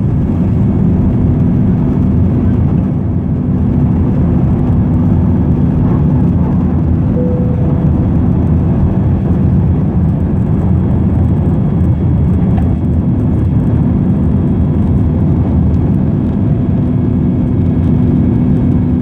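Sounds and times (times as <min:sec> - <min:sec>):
jet engines rumbling: 0:00.0 - 0:19.0
faint steady hum: 0:02.3 - 0:10.2.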